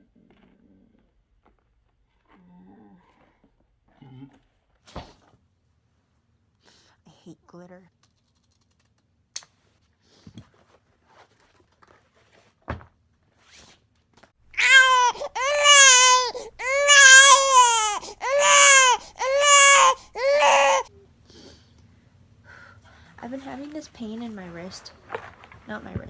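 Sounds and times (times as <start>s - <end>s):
high voice crying: 14.6s - 20.8s.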